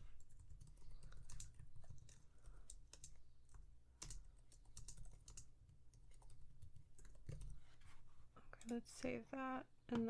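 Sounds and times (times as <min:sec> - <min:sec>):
computer keyboard typing: 0:00.1 - 0:07.6.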